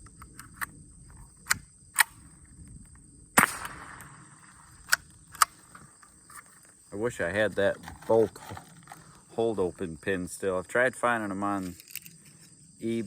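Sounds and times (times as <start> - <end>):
rifle shot echoing: 3.4 - 5.8
rifle action clicking: 4.8 - 6.4.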